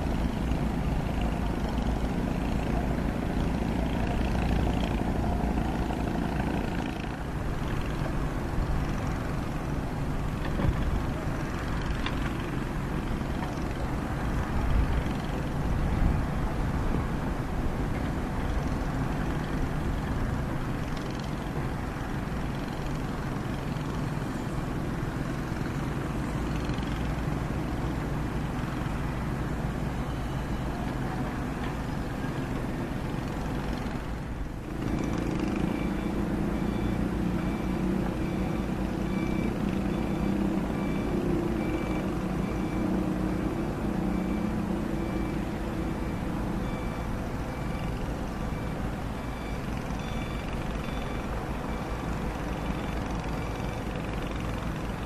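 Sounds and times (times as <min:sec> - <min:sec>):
excavator diesel engine under load: 0:00.0 - 0:55.0
high-pitched repeating beep: 0:35.0 - 0:42.9, 0:46.1 - 0:52.0.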